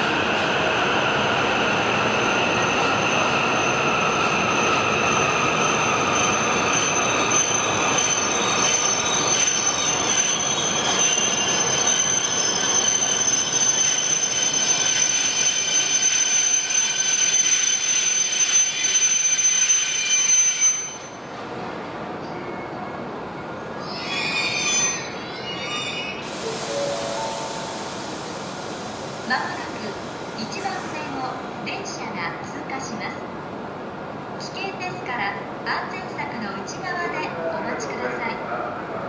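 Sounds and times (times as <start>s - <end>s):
high-speed train passing: 0.0s - 39.0s.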